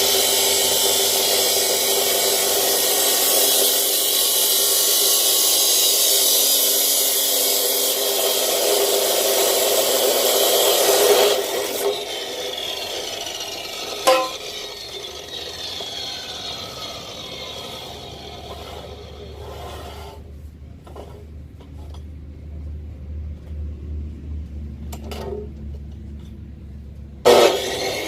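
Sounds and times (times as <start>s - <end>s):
power saw cutting steel tube: 0.0s - 20.3s, 27.2s - 28.0s
sharp knock: 14.1s - 14.4s.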